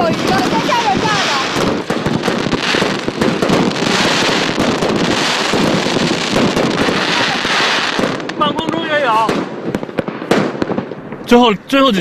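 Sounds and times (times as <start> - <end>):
firework hiss: 0.0 - 8.4
firework cracks and pops: 0.0 - 11.4.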